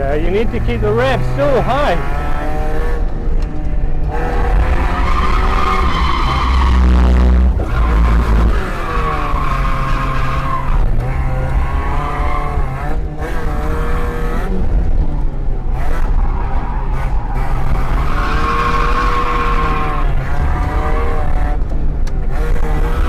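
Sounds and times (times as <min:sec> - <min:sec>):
car engine at high revs: 0:00.0 - 0:23.0.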